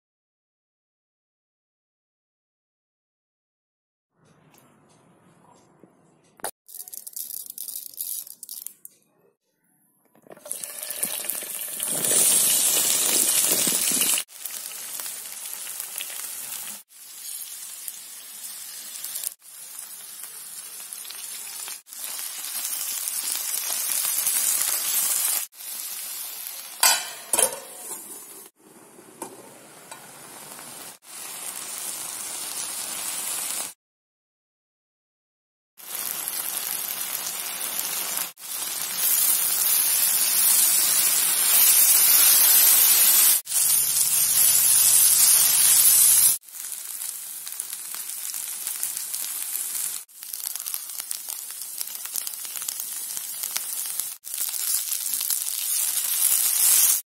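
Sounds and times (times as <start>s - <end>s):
vegetables sizzling in oil: 10.3s - 33.8s, 35.8s - 57.0s.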